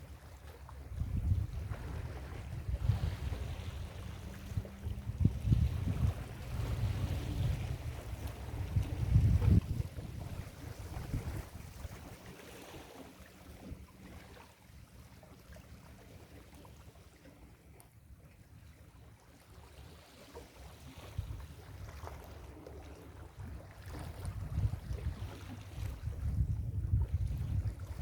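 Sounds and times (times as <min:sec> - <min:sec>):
wind rumbling on microphone: 0:00.7 - 0:14.4, 0:20.8 - 0:28.0.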